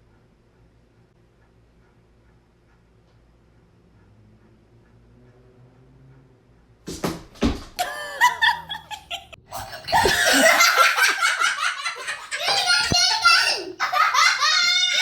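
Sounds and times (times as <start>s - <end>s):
people laughing: 7.8s - 15.0s.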